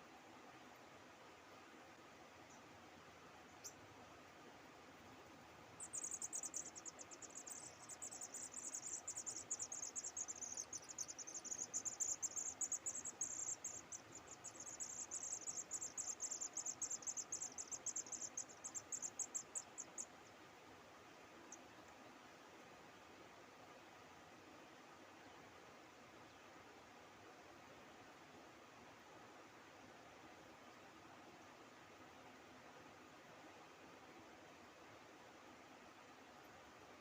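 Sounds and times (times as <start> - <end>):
faint background hiss: 0.0 - 37.0
high-pitched insect trill: 5.8 - 20.1.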